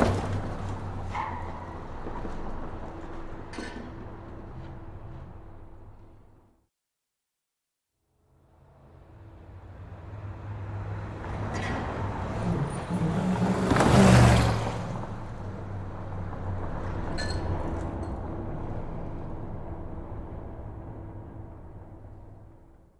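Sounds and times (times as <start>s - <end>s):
car engine passing at speed: 9.0s - 22.0s.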